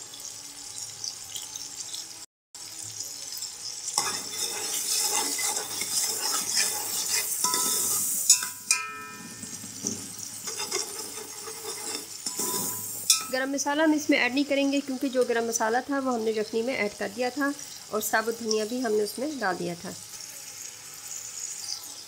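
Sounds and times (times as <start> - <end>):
food sizzling in hot oil: 0.0 - 22.0
metal fork scraping a pot: 4.0 - 13.4.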